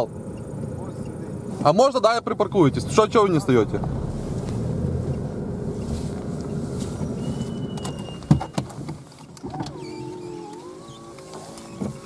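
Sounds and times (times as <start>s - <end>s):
car engine and road rumble: 0.0s - 12.0s
faint steady tones: 0.0s - 12.0s
steady hum: 2.5s - 8.2s.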